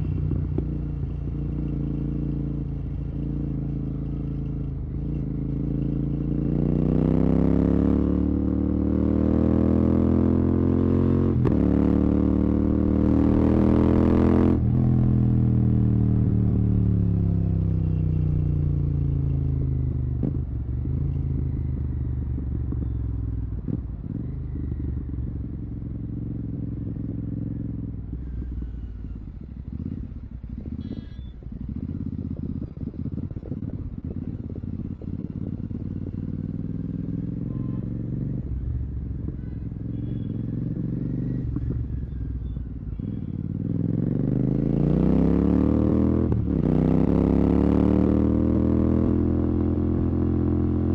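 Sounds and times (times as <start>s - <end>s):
motorcycle engine burbling: 0.0s - 50.9s.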